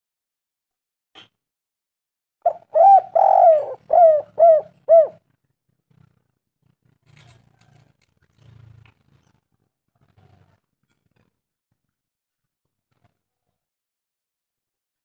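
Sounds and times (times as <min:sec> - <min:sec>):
dove cooing: 0:02.5 - 0:05.2.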